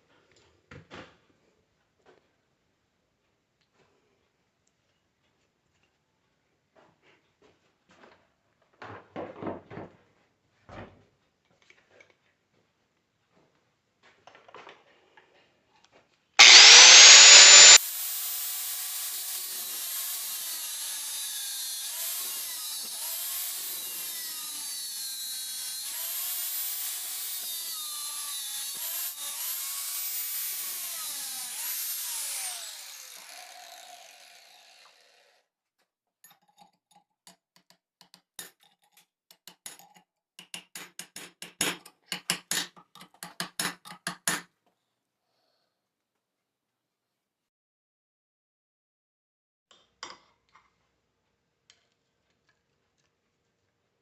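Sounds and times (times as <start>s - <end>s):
power tool motor whining: 16.4s - 35.4s.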